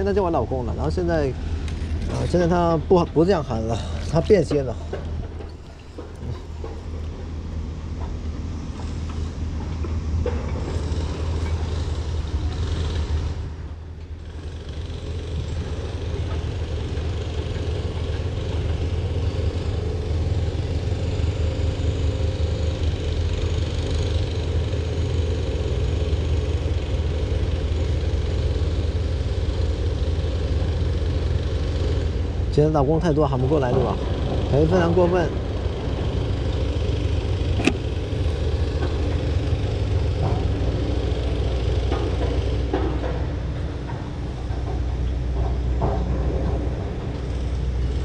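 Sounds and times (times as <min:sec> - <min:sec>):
vehicle rumble with hiss: 0:00.0 - 0:48.0.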